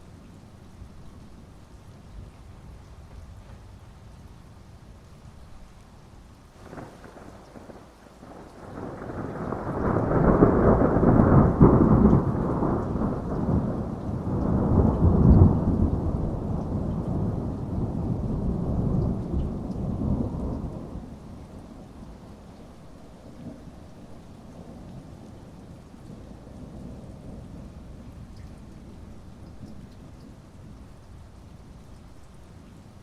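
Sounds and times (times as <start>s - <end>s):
heavy rain: 0.0s - 33.0s
thunder crack: 6.6s - 16.4s
rolling thunder rumble: 6.6s - 30.5s.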